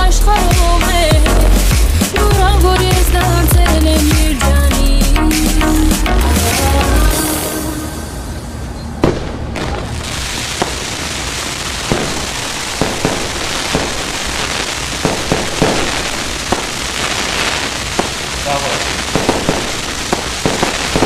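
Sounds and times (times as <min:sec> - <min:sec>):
fireworks crackling: 0:06.4 - 0:21.0
fireworks booming and popping: 0:08.6 - 0:21.0.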